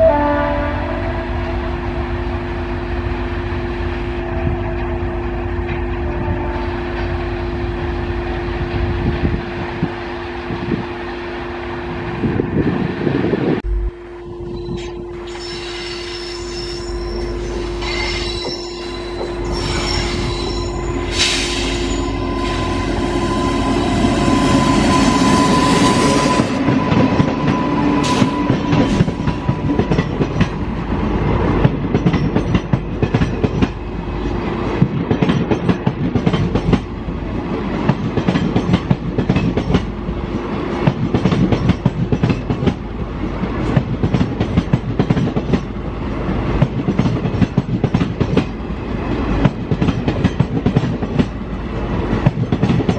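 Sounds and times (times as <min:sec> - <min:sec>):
train rumbling past: 0:00.0 - 0:52.9
steady high tone: 0:13.6 - 0:31.1.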